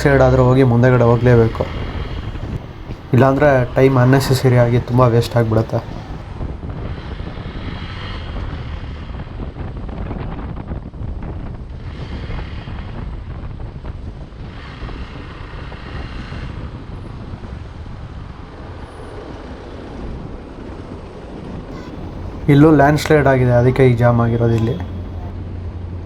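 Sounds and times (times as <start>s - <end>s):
wind rush on microphone: 0.0s - 24.2s.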